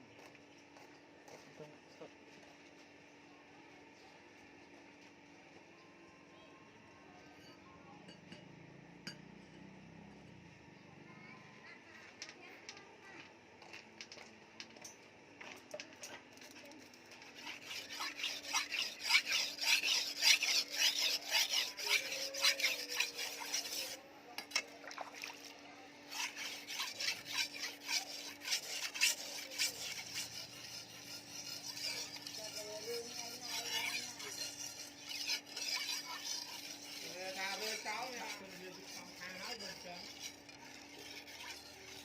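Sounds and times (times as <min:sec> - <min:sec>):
steel scraping against abrasive: 0:16.4 - 0:24.7, 0:26.1 - 0:42.0.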